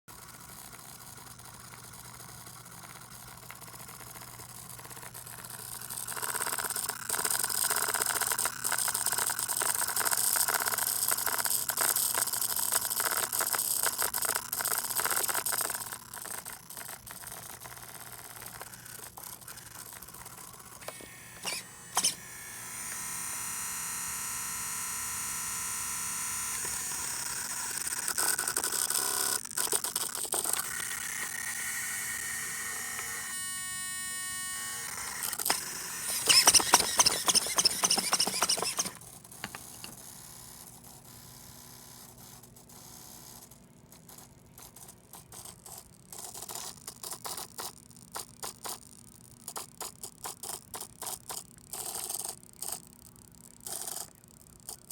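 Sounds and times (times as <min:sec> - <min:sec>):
high-pitched servo whine: 0:20.4 - 0:27.9, 0:30.6 - 0:39.9
sharp clicks: 0:20.8 - 0:22.3, 0:35.2 - 0:39.9.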